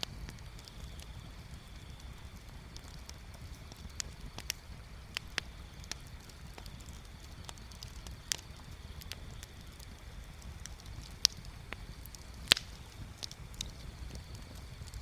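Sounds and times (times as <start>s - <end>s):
bonfire crackling: 0.0s - 15.0s
low steady rumble: 0.0s - 15.0s.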